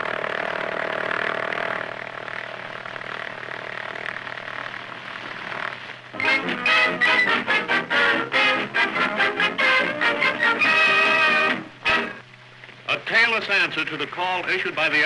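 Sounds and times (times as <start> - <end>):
propeller aircraft engine drone: 0.0 - 15.0
soundtrack hiss: 0.0 - 15.0
music: 6.1 - 12.2.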